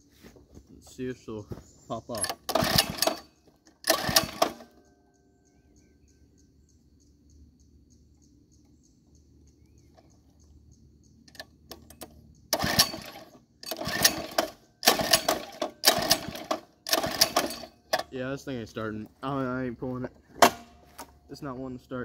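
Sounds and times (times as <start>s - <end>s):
engine turning over: 2.1s - 4.8s, 11.3s - 18.2s
recoil pull starter yanked: 2.1s - 4.8s, 11.3s - 18.2s.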